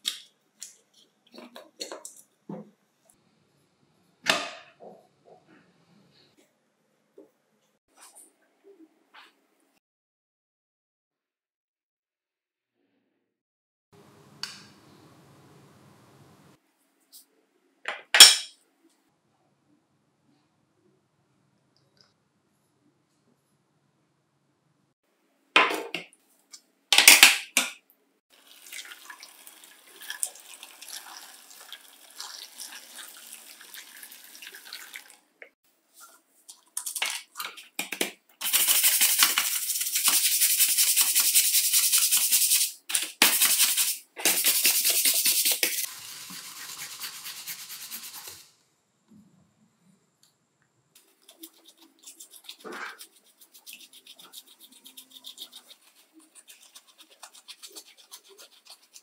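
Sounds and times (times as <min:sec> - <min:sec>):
stiff brush scrubbing: 0:43.4 - 0:48.4, 0:51.0 - 0:59.0.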